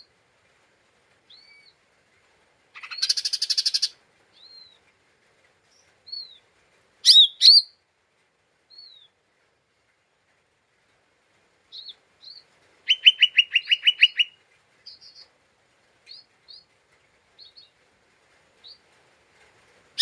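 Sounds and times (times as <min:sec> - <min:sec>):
bird whistling and chattering: 0:02.8 - 0:04.7, 0:07.0 - 0:07.7, 0:12.9 - 0:14.4.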